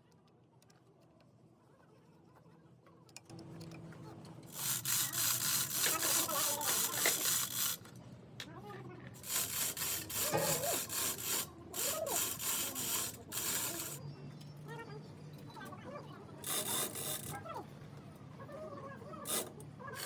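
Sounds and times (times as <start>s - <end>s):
rough scraping on hard surface: 9.2s - 11.2s.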